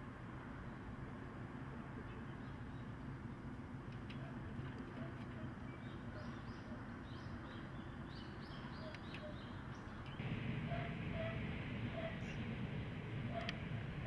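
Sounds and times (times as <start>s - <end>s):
low background hum: 0.0s - 14.0s
small birds chirping: 2.0s - 12.5s.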